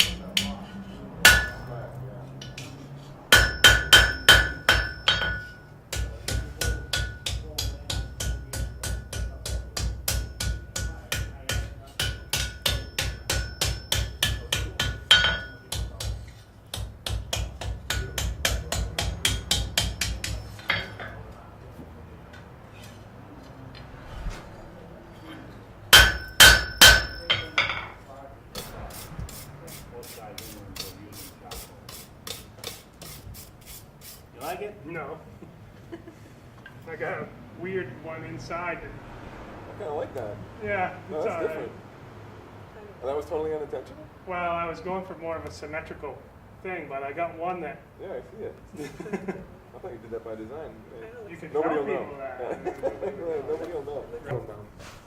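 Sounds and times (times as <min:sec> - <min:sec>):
hammer striking an anvil: 0:00.0 - 0:00.6, 0:01.2 - 0:01.8, 0:03.3 - 0:21.2, 0:25.9 - 0:29.4.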